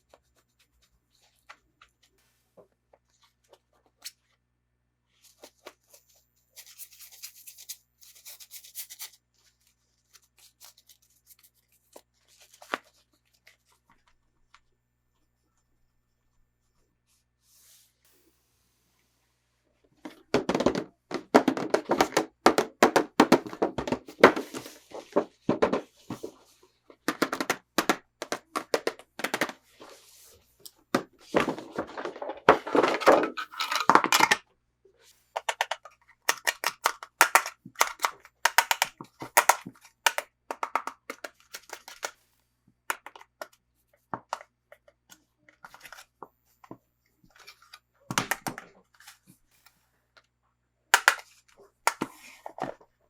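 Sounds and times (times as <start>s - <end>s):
plastic and cardboard crinkling: 19.9s - 34.4s
packaging clicks and taps: 20.0s - 26.4s, 27.0s - 29.9s, 35.4s - 42.2s, 42.9s - 43.6s, 51.0s - 52.8s.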